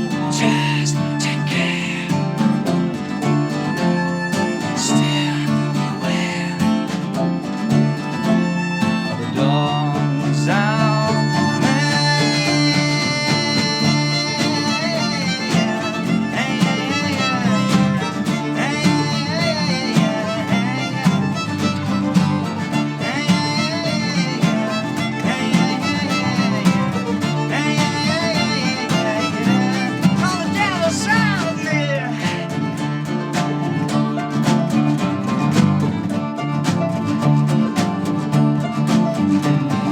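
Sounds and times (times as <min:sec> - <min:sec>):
guitar: 0:00.0 - 0:39.9
violin melody with vibrato: 0:00.0 - 0:39.9.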